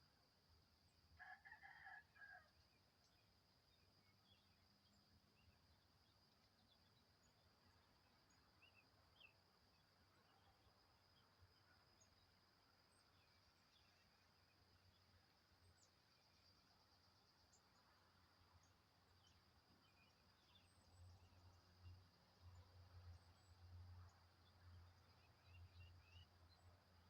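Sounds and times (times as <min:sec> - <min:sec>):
rooster crowing: 0:01.2 - 0:02.5.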